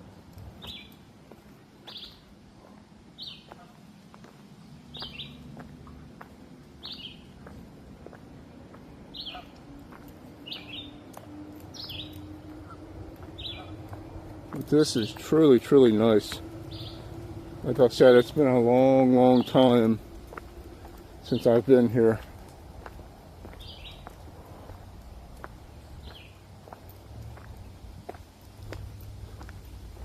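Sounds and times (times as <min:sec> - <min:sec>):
songbird call: 0:04.9 - 0:06.0, 0:06.8 - 0:07.5, 0:09.1 - 0:21.9, 0:23.5 - 0:24.8, 0:26.0 - 0:26.8.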